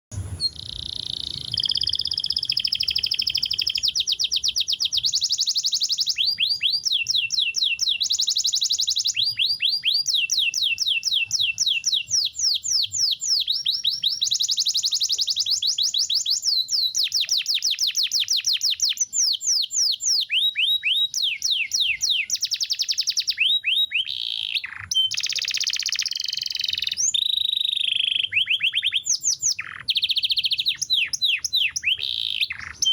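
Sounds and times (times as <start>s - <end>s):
canary singing trills: 0.2s - 32.9s.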